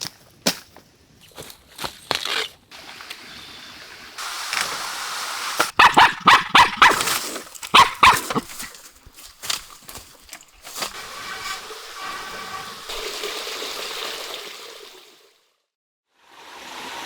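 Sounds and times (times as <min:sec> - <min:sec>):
dog barking and yipping: 0:05.7 - 0:08.9.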